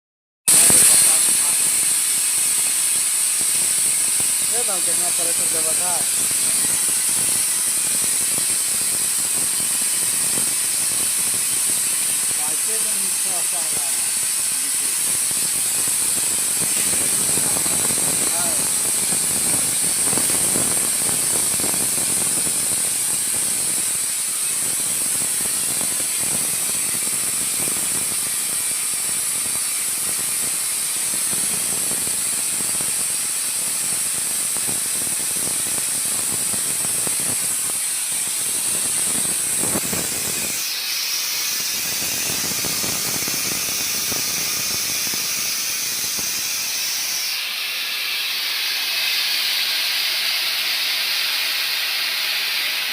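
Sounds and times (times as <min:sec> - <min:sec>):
steam hissing from pipe: 0:00.5 - 0:52.9
rough rattling undertone: 0:04.3 - 0:07.5.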